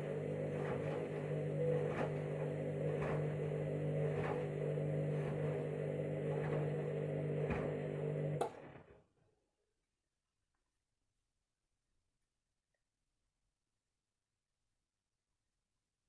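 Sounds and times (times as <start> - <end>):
washing machine motor humming: 0.0 - 8.9.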